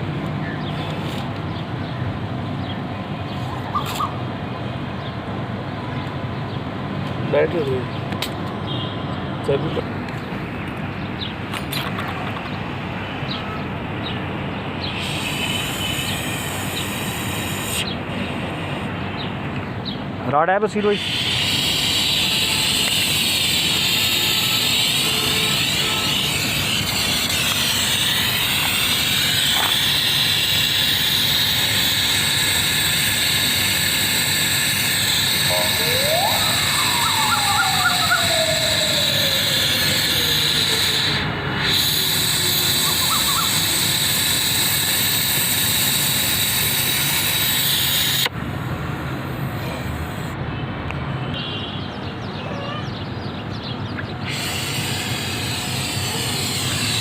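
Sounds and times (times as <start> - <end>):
torch flame hissing: 14.8 - 18.9, 20.7 - 48.4, 54.3 - 57.0.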